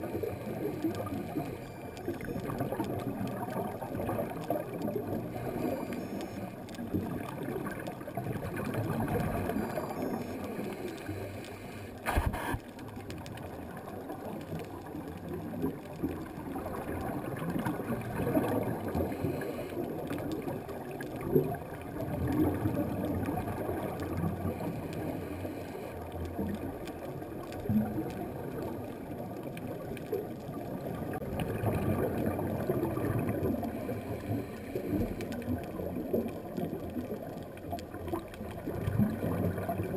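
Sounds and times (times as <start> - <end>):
exhaled bubbles: 0.0 - 39.9
underwater regulator breathing: 5.2 - 6.6, 9.6 - 12.8, 24.4 - 26.0, 33.7 - 35.4
sharp click: 12.0 - 12.6.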